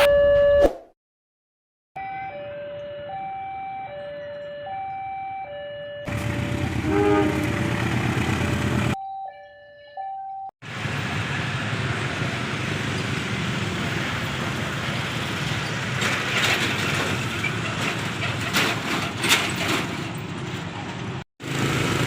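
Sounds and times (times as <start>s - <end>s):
level crossing alarm ding-dong: 2.0s - 6.1s, 9.0s - 10.5s.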